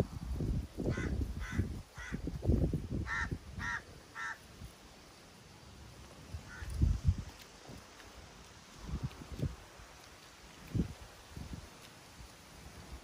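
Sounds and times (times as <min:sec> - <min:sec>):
wind buffeting the microphone: 0:00.0 - 0:04.8, 0:06.1 - 0:13.0
bird calling short calls: 0:03.1 - 0:04.4, 0:06.5 - 0:06.7.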